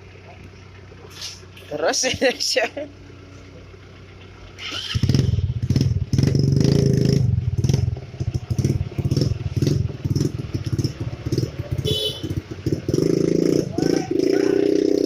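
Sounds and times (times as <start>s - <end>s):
engine running with pulsing beat: 0.0s - 15.0s.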